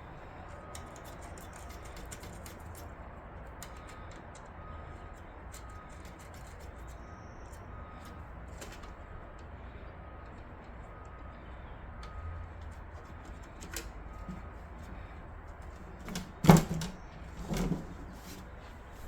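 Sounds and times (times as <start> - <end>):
light clicks of computer parts: 0.4 - 16.9.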